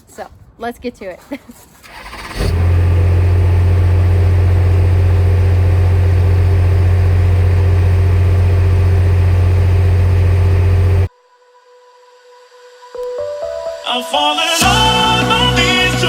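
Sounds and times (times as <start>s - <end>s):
engine idling: 1.9s - 11.1s.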